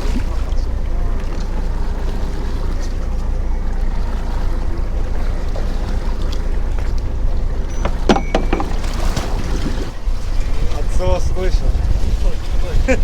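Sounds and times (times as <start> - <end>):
boat engine humming: 0.0 - 13.0
sharp knocks: 7.7 - 9.3
short clatter: 7.7 - 10.0.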